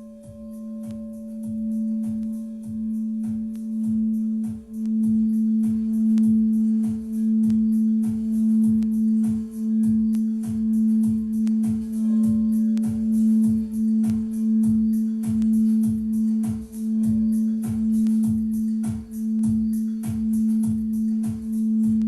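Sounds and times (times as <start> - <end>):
crystal singing bowl tone: 0.0 - 22.0
drum beating steadily: 0.0 - 22.0.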